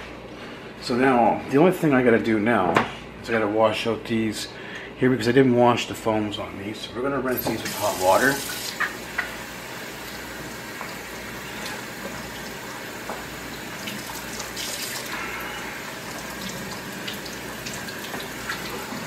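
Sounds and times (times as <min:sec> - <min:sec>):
faucet water splashing into sink: 0:07.5 - 0:09.4, 0:10.0 - 0:15.2, 0:15.8 - 0:19.0.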